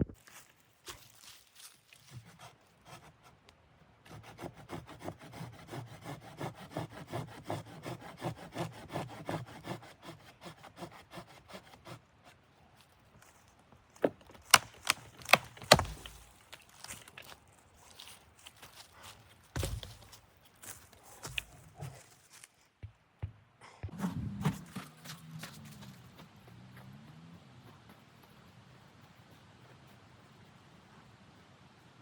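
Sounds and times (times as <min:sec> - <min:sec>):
saw cutting wood: 0:04.1 - 0:12.0.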